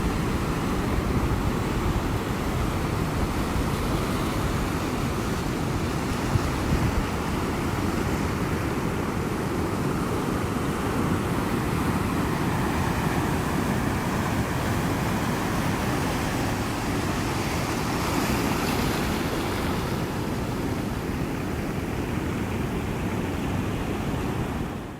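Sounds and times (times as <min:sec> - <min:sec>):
ocean surf washing in: 0:00.0 - 0:24.9.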